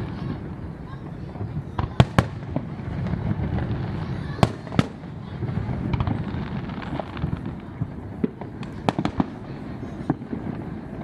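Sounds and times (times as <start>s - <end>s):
fireworks cracking and popping: 0.0s - 11.0s.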